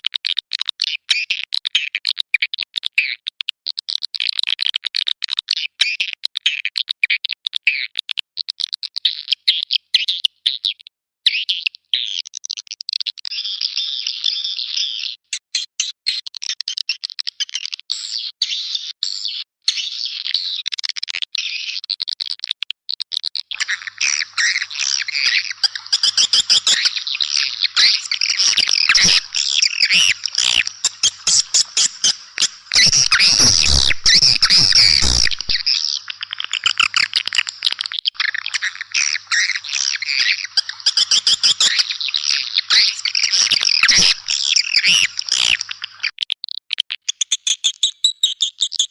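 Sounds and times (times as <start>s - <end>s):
swiftlets chirping: 23.6s - 37.7s.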